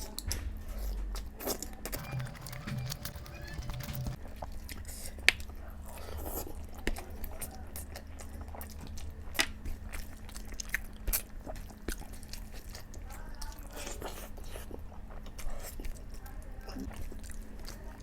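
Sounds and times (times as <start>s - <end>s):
chewing and biting food: 1.4s - 18.0s
sharp clicks: 2.0s - 4.2s.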